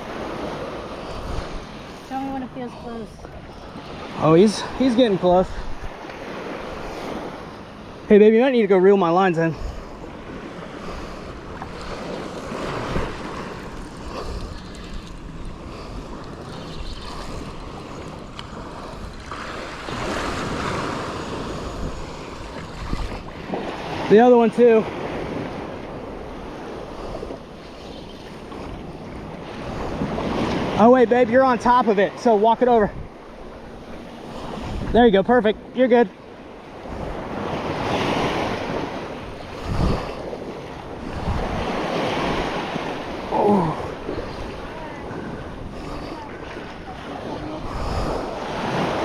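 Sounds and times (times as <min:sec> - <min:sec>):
wind on microphone: 0:00.0 - 0:04.0, 0:09.5 - 0:24.2, 0:32.8 - 0:35.1, 0:36.8 - 0:49.0
waves washing ashore: 0:00.0 - 0:49.0.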